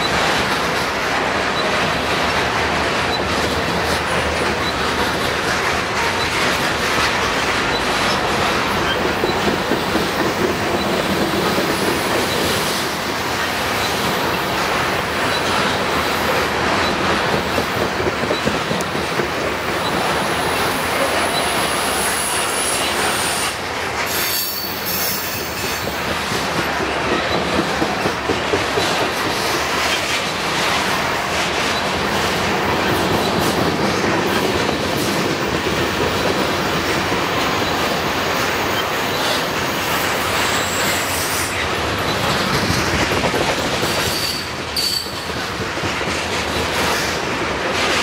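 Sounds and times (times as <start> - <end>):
train wheels rumbling on rails: 0.0 - 48.0
wheel squeal: 21.1 - 26.0, 44.0 - 45.2.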